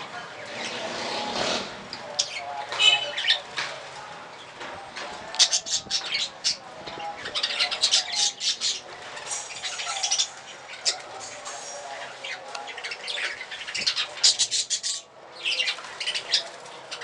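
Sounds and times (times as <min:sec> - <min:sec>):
budgerigars chirping: 0:05.4 - 0:11.1.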